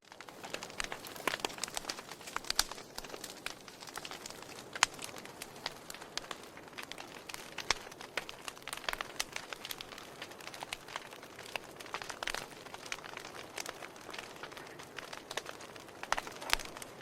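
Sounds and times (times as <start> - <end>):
fire hissing softly: 0.0 - 17.0
wood fire crackling: 0.0 - 17.0.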